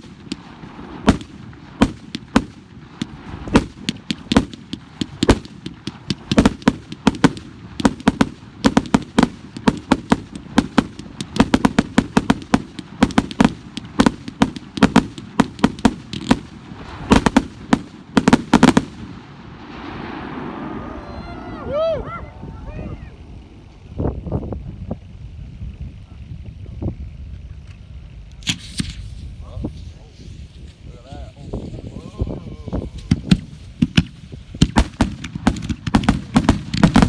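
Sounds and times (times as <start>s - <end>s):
fireworks bangs and pops: 0.0s - 20.5s, 28.4s - 37.0s.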